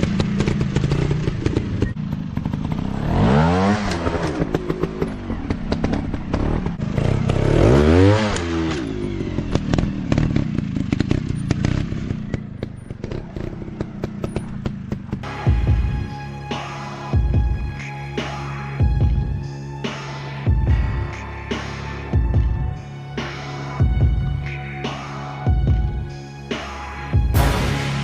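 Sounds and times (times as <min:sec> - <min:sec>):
dirt bike engine revving: 0:00.0 - 0:15.5.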